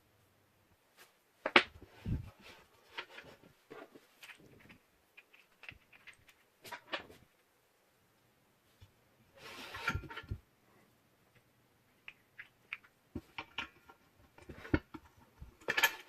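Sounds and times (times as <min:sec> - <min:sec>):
clicks and rustles of unboxing: 0:01.5 - 0:07.3.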